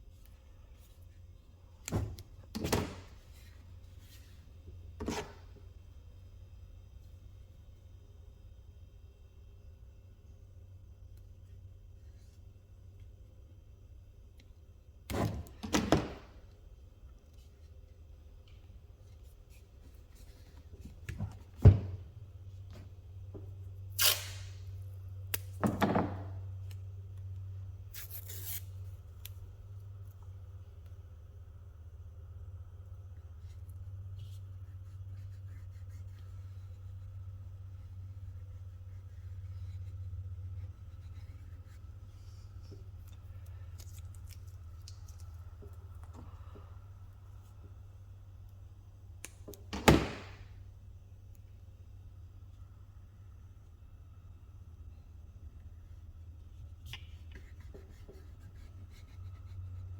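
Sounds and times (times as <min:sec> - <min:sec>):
low steady hum: 0:00.0 - 0:59.9
short ripping or hissing bursts: 0:24.0 - 0:24.6.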